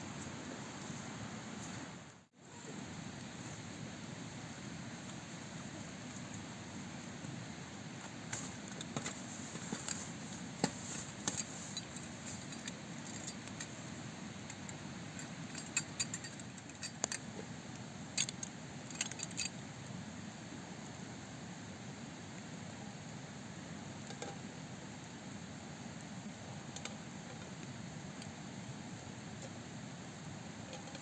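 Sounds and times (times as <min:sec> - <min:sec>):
steady hiss: 0:00.0 - 0:31.0
light clicks and clinks: 0:14.4 - 0:17.3, 0:18.1 - 0:19.6.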